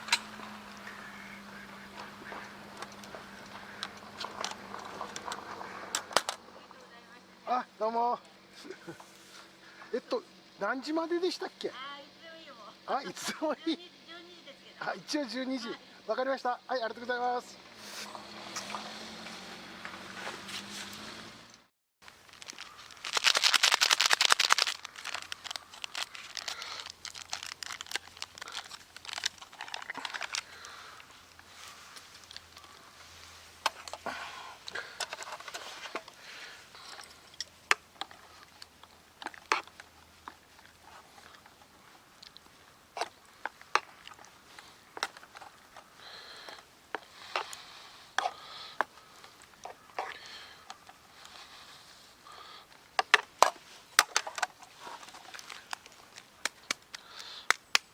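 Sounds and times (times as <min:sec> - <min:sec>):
crinkly material rustling: 0:22.0 - 0:45.9, 0:53.0 - 0:57.0.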